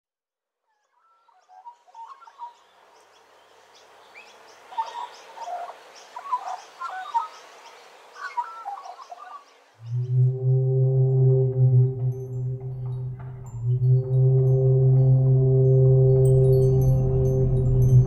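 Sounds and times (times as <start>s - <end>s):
birds chirping and calling: 1.0s - 10.1s.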